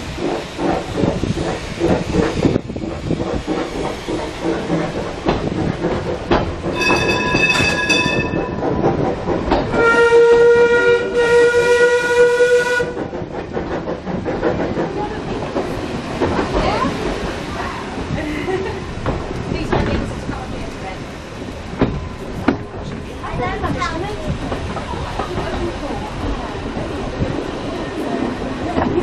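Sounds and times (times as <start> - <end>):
rail clatter: 0.0 - 29.0
steam locomotive chuffing: 0.0 - 29.0
steam whistle blast: 9.8 - 12.9.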